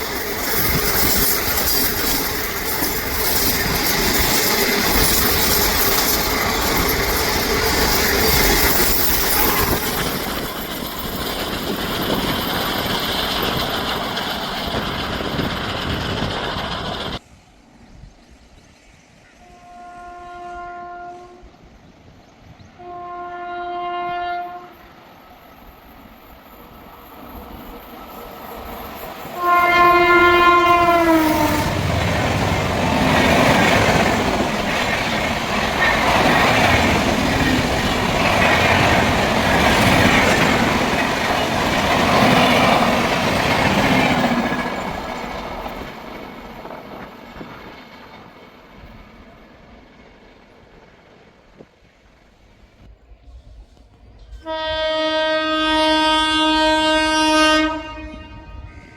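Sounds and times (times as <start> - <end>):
train wheels clattering over rail joints: 0.0 - 17.2, 30.5 - 50.7
locomotive horn blasts: 19.4 - 21.6, 22.8 - 24.8, 29.4 - 31.8, 54.4 - 58.9.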